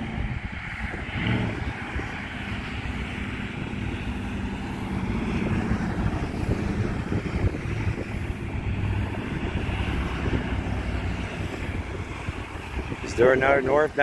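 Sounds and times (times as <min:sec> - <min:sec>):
cars driving by: 0:00.0 - 0:14.0
freight train rumbling past: 0:00.0 - 0:14.0.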